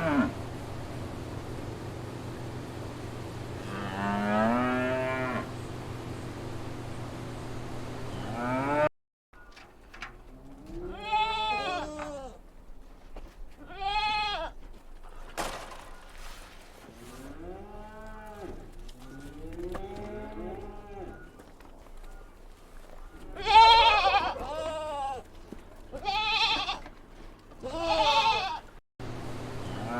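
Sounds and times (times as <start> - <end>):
cow mooing: 0.0 - 0.4, 3.6 - 5.5, 8.2 - 8.9, 17.3 - 21.2, 29.7 - 29.9
sheep bleating: 10.8 - 12.4, 13.6 - 14.6, 23.4 - 25.3, 25.9 - 26.9, 27.6 - 28.7.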